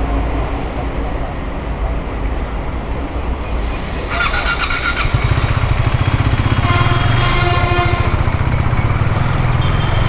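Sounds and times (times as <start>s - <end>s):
high squeal: 4.0s - 6.3s
motorcycle engine running: 4.1s - 10.0s.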